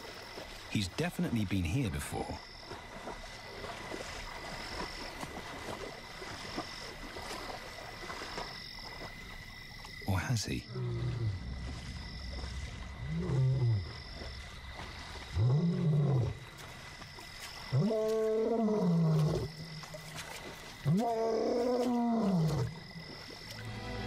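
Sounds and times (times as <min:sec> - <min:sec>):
lion roaring: 0:12.9 - 0:14.0, 0:15.4 - 0:16.4, 0:17.7 - 0:19.5, 0:20.8 - 0:22.8.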